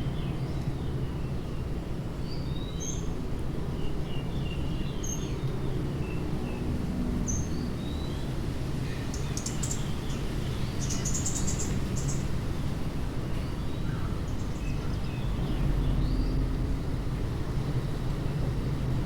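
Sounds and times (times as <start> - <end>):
small birds chirping: 7.3 - 12.4, 13.3 - 16.5.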